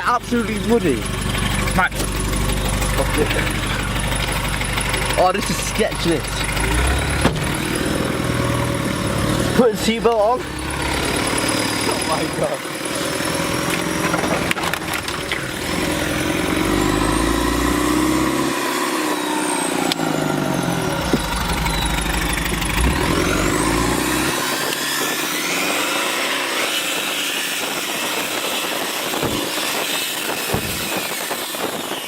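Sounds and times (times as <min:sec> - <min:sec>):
vehicle engine revving: 0:00.0 - 0:31.1
knocks and clunks: 0:01.4 - 0:09.2, 0:13.6 - 0:15.5, 0:30.5 - 0:31.0.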